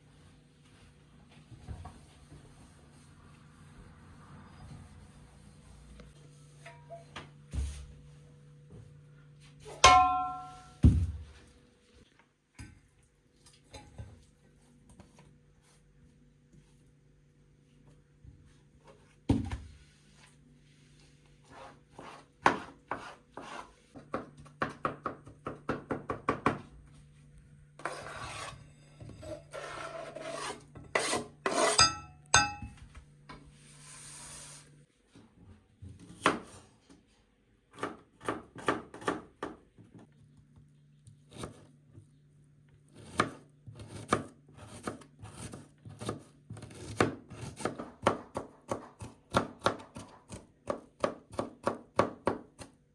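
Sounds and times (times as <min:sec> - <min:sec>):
dishes clinking: 0:09.8 - 0:10.9, 0:31.7 - 0:32.8.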